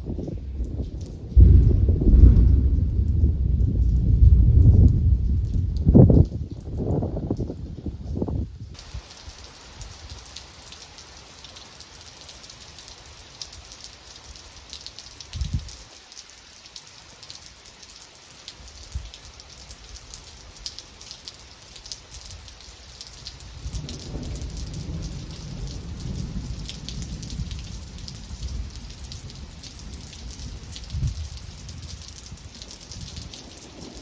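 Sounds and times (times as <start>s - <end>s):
low rumble of thunder: 0.0s - 9.0s, 15.3s - 15.8s, 22.4s - 34.0s
rain drops pattering: 0.0s - 34.0s.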